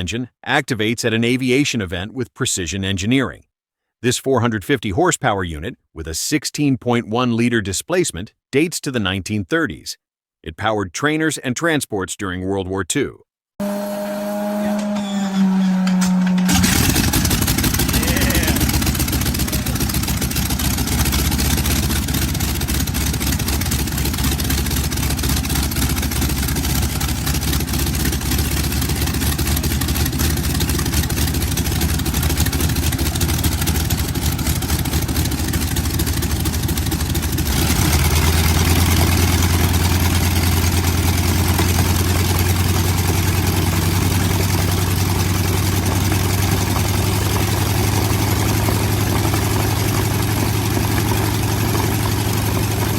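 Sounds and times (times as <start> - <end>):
radial aircraft engine running: 13.6 - 52.9.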